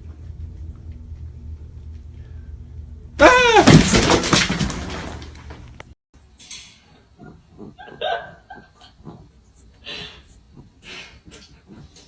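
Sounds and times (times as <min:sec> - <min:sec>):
pet animal breathy puffs: 0:08.9 - 0:12.0.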